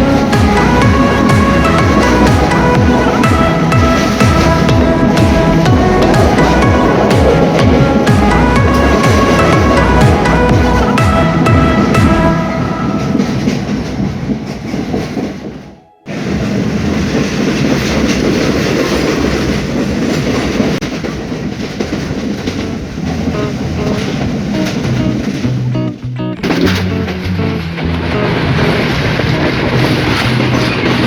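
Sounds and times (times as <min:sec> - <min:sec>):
background music: 0:00.0 - 0:16.1, 0:22.7 - 0:31.0
passenger train running on track: 0:00.0 - 0:31.0.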